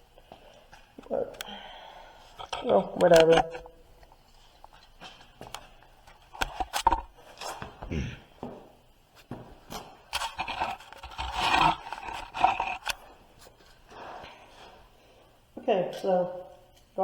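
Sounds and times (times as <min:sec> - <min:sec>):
clicks and knocks of handling: 0:02.4 - 0:07.1
scraping and rubbing: 0:10.0 - 0:14.3.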